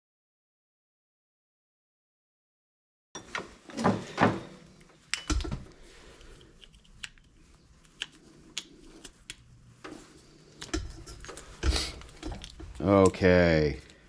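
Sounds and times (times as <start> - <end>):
metal parts and tools handled: 5.1 - 5.5, 9.9 - 12.8.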